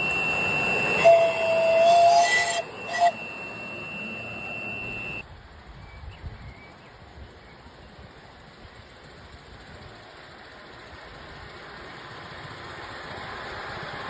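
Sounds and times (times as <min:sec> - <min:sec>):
steady high-pitched tone: 0:00.0 - 0:05.2
toy train horn tooting: 0:00.0 - 0:05.2.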